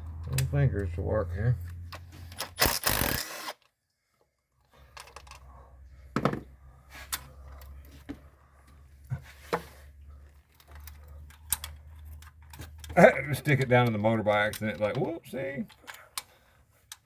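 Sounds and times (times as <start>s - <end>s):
hand tools clicking and knocking: 10.4s - 17.0s.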